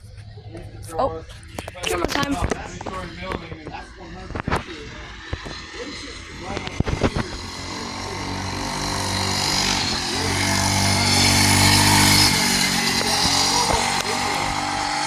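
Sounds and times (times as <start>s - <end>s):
mini bike engine running: 4.2s - 15.0s.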